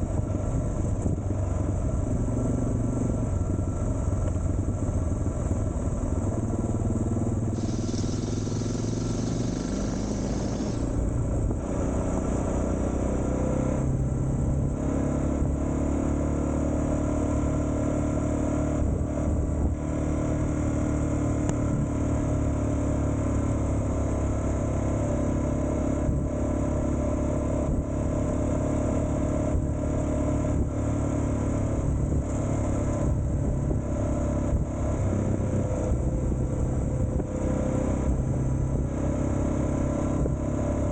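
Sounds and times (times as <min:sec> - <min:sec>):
motorcycle engine running: 0:00.0 - 0:40.9
hiss: 0:07.6 - 0:11.0.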